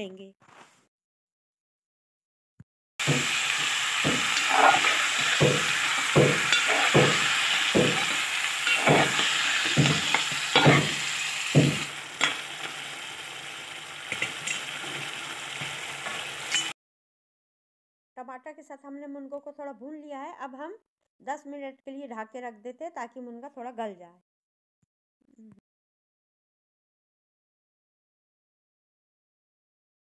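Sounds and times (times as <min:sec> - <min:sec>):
food sizzling in a pot: 0:03.0 - 0:16.8
metal spoon scraping a pot: 0:03.5 - 0:12.4.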